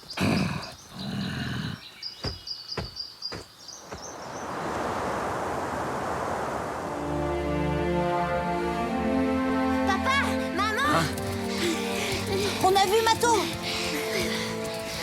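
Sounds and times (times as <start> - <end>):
steady rushing noise: 3.9 - 7.5.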